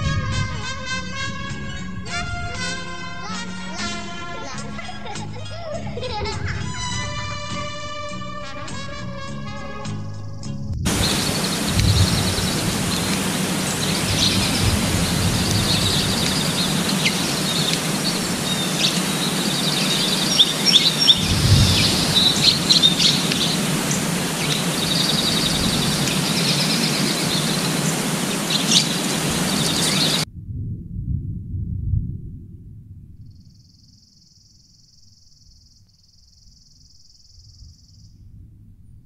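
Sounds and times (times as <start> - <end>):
outdoor background hiss: 10.0 - 30.3
small birds chirping: 10.9 - 30.3, 33.3 - 38.2.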